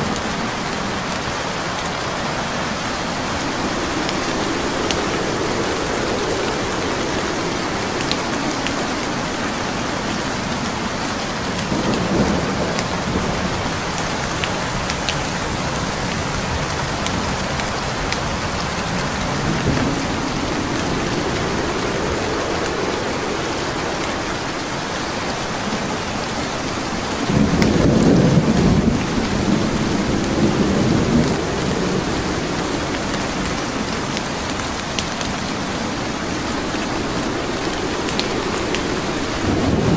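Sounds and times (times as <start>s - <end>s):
steady rain: 0.0s - 39.9s
thunder rumbling: 0.0s - 39.9s
wood fire crackling: 0.0s - 39.9s.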